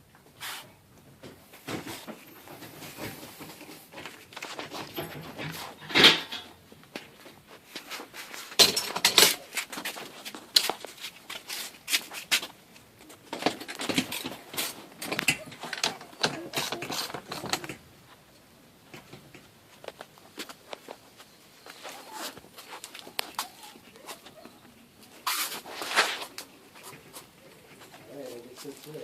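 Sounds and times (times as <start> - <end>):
metal hardware clinking and rattling: 2.2 - 7.1, 8.5 - 9.8, 13.3 - 17.9.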